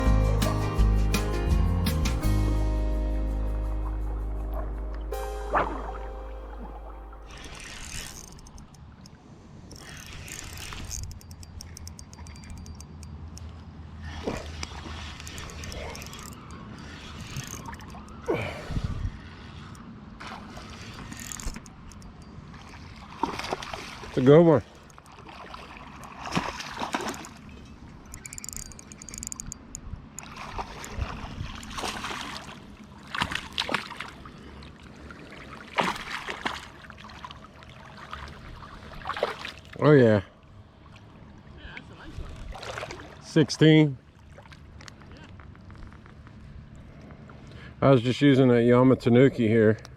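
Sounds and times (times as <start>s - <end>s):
water splashes: 3.8s - 9.0s, 14.0s - 21.2s, 22.5s - 28.2s, 30.2s - 40.0s, 40.8s - 45.5s
fishing reel ratchet clicking: 7.6s - 13.5s, 15.2s - 18.2s, 21.0s - 22.3s, 28.1s - 30.3s.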